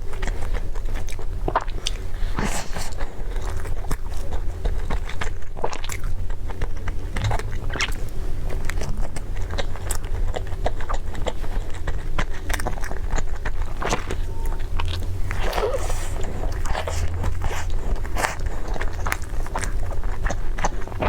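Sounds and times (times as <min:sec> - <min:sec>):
person chewing food: 0:00.0 - 0:21.0
mouth clicks and smacks: 0:12.2 - 0:21.0
low hum: 0:13.6 - 0:21.0.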